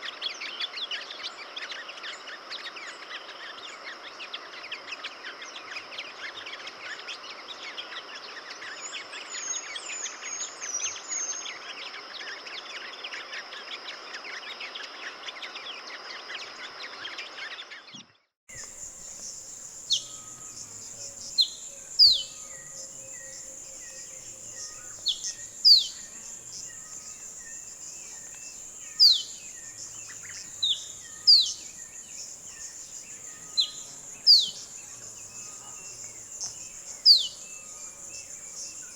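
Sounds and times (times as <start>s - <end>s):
birds chirping chorus: 18.5s - 38.9s
high insect drone: 18.5s - 38.9s
sharp whistled bird calls: 18.5s - 38.9s.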